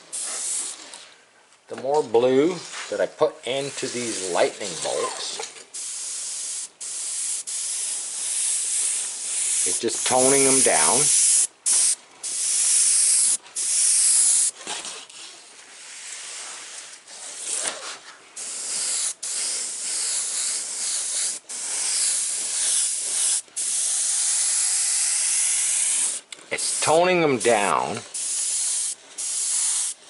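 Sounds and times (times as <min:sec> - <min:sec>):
airbrush spraying hiss: 0:00.0 - 0:00.8, 0:03.7 - 0:14.5, 0:18.4 - 0:30.0.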